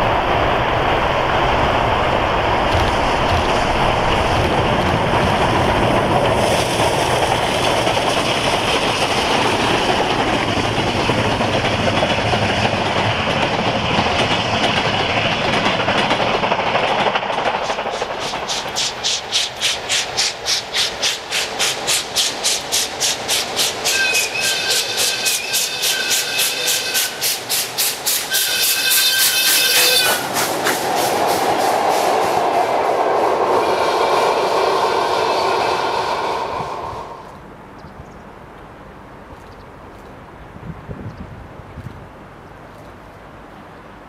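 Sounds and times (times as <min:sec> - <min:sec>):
steam train rushing by: 0:00.0 - 0:37.5
steam engine fast even beat: 0:08.5 - 0:37.3.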